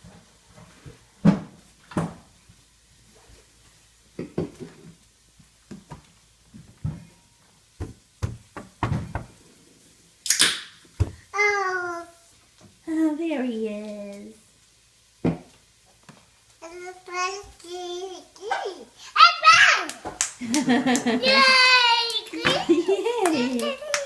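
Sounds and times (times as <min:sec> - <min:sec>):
cabinet doors knocking and clunking: 0:07.8 - 0:09.4.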